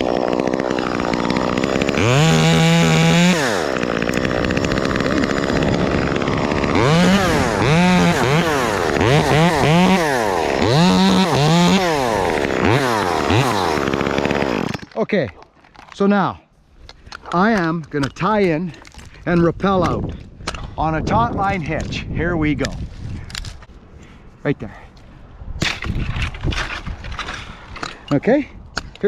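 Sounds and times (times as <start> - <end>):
chainsaw idling and revving: 0.0 - 15.0.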